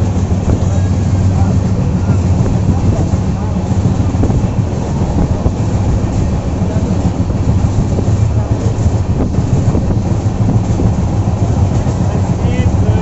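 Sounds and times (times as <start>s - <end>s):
train rumbling inside coach: 0.0s - 13.0s
wind noise on microphone: 0.0s - 13.0s.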